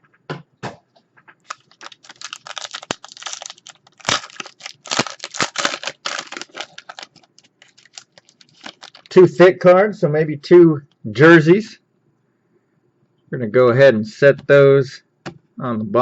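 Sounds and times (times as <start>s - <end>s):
wrapper being torn and crinkled: 1.4s - 9.2s.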